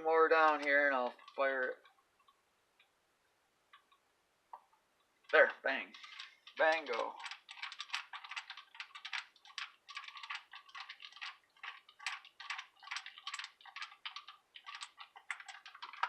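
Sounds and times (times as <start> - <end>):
screwdriver clicking on plastic: 5.9 - 16.0.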